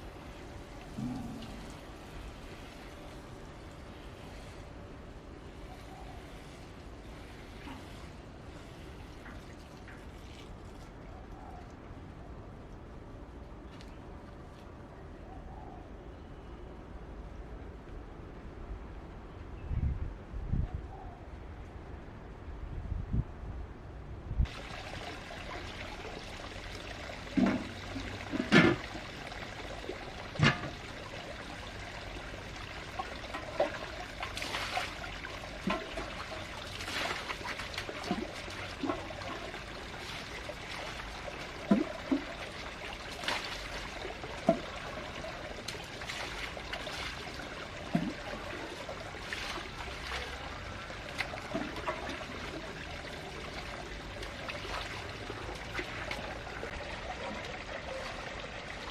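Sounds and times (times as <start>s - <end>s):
water trickling: 0.0s - 11.0s, 24.5s - 58.9s
knocks and splashes: 24.5s - 58.2s.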